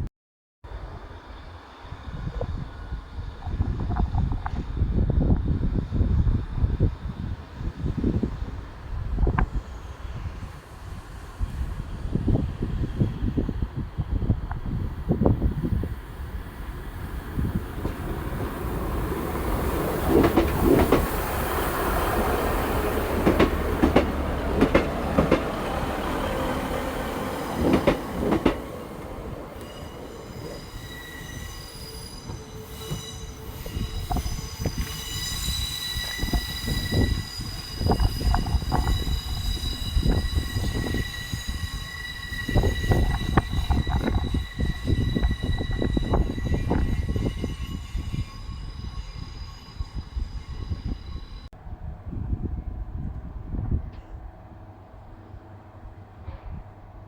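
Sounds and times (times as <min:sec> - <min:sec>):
train rumbling on tracks: 0:00.7 - 0:57.0
high-pitched wheel squeal: 0:29.5 - 0:51.5.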